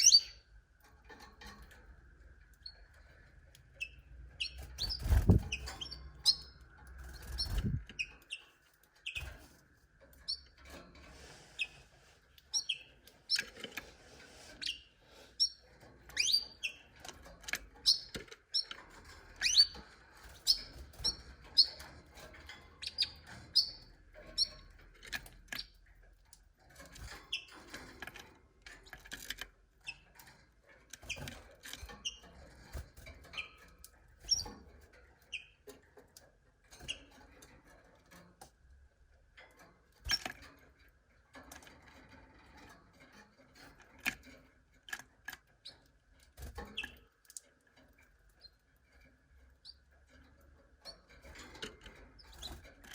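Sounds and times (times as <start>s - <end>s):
canaries chirping: 0.0s - 0.5s, 1.1s - 25.8s, 31.0s - 35.8s, 43.6s - 47.2s, 49.5s - 52.9s.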